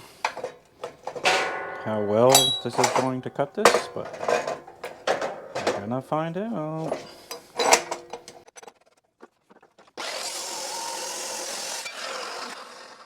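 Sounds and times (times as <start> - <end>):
metallic knock: 0.0 - 8.4
power tool cutting steel: 10.0 - 13.0.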